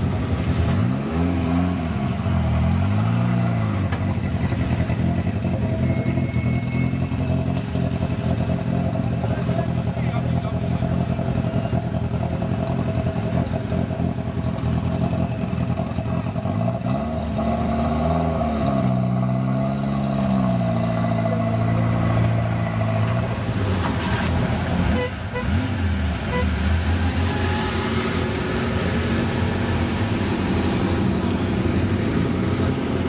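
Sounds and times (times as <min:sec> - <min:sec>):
performance car engines idling: 0:03.7 - 0:17.0, 0:20.2 - 0:25.4
engine revving: 0:14.8 - 0:33.0.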